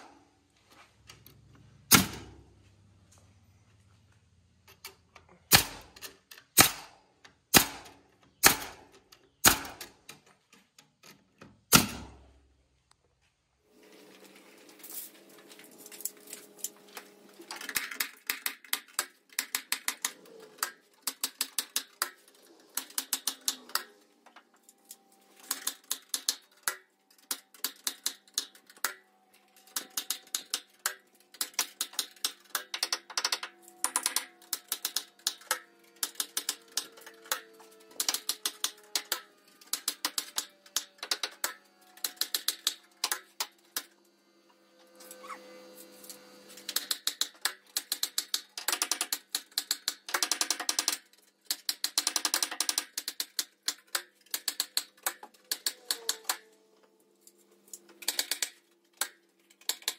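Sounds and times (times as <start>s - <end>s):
pneumatic nailer clacking into metal: 24.9s - 44.0s, 46.1s - 56.6s, 57.8s - 59.9s.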